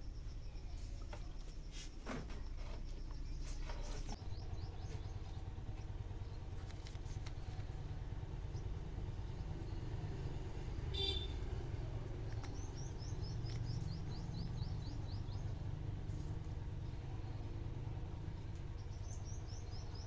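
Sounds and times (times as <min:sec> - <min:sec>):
bird chirping: 0:00.0 - 0:06.7, 0:08.5 - 0:16.3, 0:18.7 - 0:20.0
low background rumble: 0:00.0 - 0:20.0.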